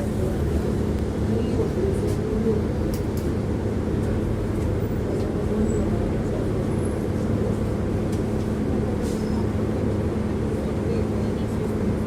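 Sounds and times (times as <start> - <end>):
tram rumbling: 0.0 - 12.0.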